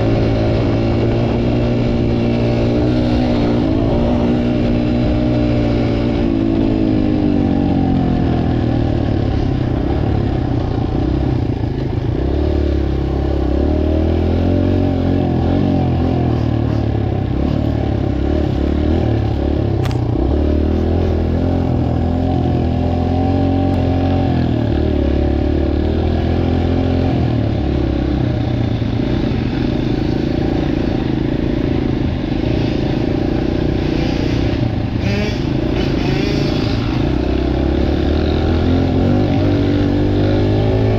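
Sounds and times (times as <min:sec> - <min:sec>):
dirt bike engine revving: 0:00.0 - 0:40.9
sharp click: 0:19.8 - 0:20.1.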